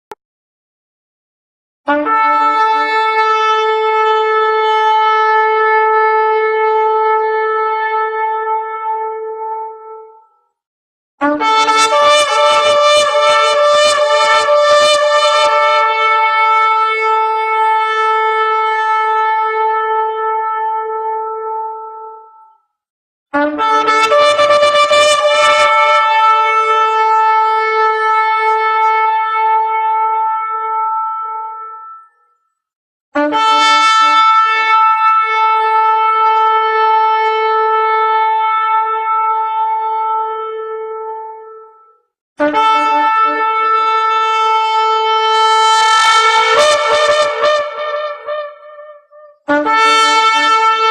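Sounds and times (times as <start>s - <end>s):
shofar long blast: 1.9s - 9.7s, 11.2s - 21.8s, 23.4s - 31.8s, 42.4s - 50.9s.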